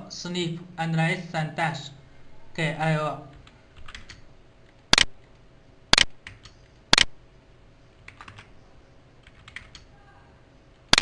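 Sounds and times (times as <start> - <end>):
computer keyboard typing: 3.4 - 4.2, 6.0 - 7.1, 8.0 - 8.5, 9.2 - 9.9.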